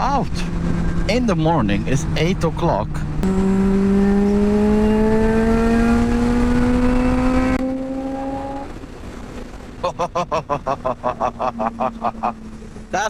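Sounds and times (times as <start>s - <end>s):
motorcycle engine accelerating: 0.4s - 10.0s.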